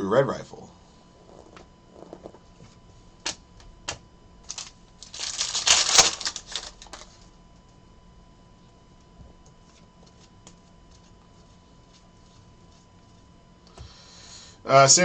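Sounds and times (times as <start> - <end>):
cards crackling and rustling: 3.2 - 7.3.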